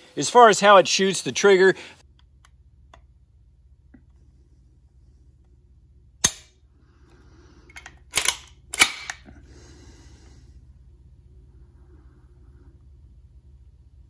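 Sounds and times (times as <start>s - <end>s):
trigger snap: 6.2s - 6.5s, 7.7s - 9.3s.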